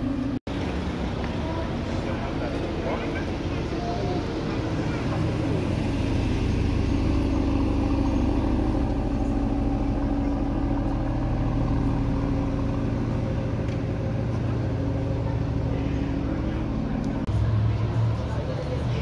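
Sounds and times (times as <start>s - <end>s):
car engine running at low revs: 0.0s - 19.0s.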